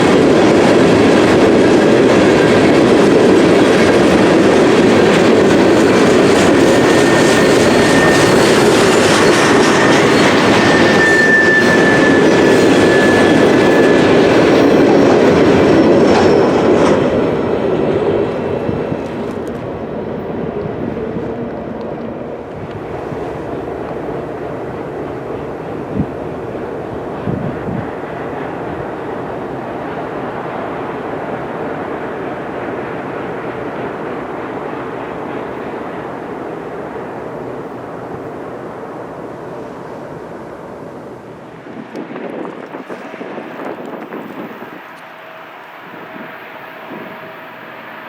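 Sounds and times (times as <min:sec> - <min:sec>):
freight train cars rolling: 0:00.0 - 0:48.0
thin wheel squeal: 0:06.9 - 0:14.4.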